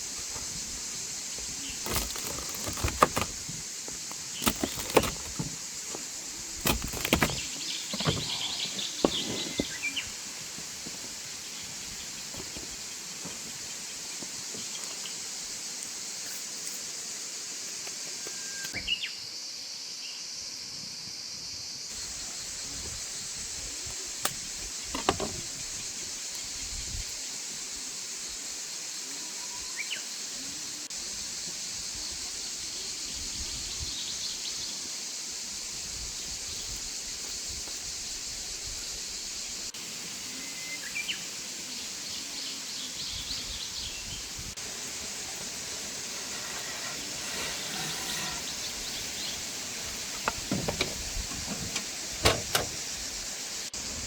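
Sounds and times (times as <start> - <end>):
steady high hiss: 0.0 - 54.0
sharp clicks or knocks: 4.1 - 5.6, 6.6 - 8.4.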